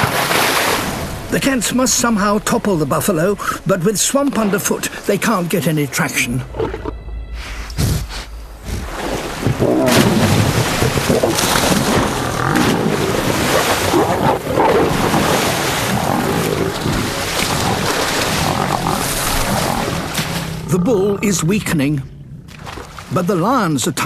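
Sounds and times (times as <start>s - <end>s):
water splashing: 0.0s - 7.0s, 7.6s - 24.0s
lionesses growling: 1.1s - 23.4s.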